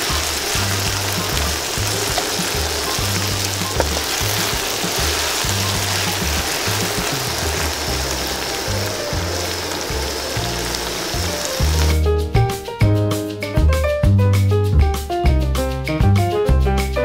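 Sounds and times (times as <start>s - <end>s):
meat deep-frying in oil: 0.0s - 12.5s
background music with bass: 0.0s - 17.0s.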